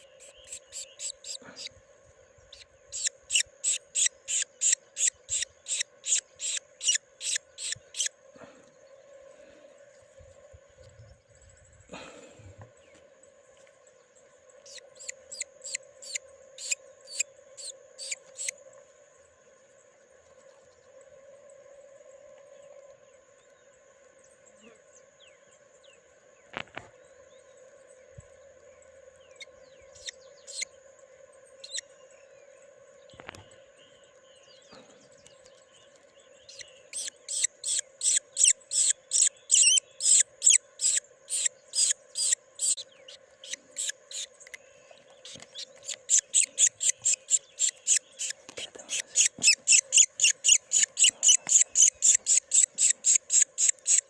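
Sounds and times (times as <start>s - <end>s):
young birds chirping: 0.0s - 1.7s, 2.5s - 8.1s, 14.7s - 18.5s, 29.3s - 30.7s, 34.6s - 54.0s.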